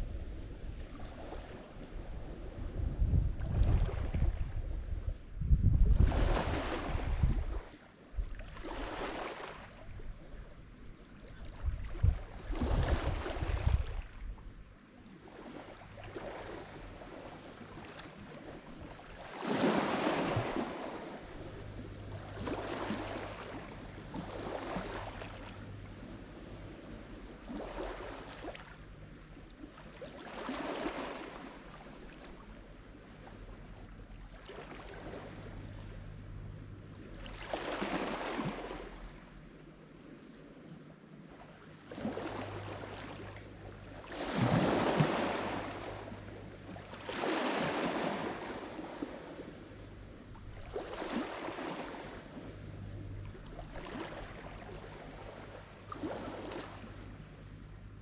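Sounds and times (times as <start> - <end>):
waves breaking on shore: 0.0 - 4.9, 5.8 - 14.3, 15.0 - 36.0, 36.9 - 57.2
wind rumbling on microphone: 0.0 - 29.7.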